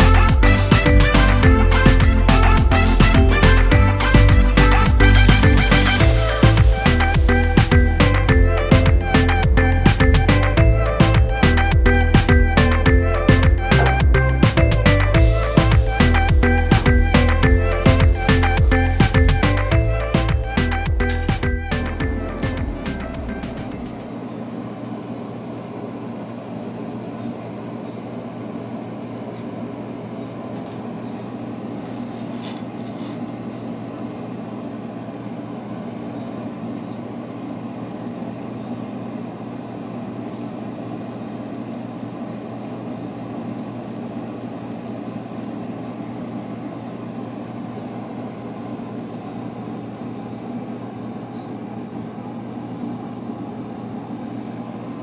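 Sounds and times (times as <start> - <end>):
low machine hum: 0.0 - 28.9.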